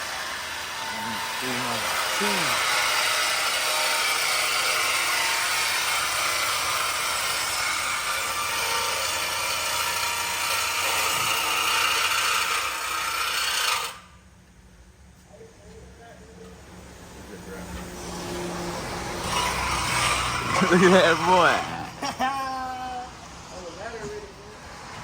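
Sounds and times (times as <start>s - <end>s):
power saw cutting metal pipe: 0.0s - 14.1s, 17.8s - 22.4s.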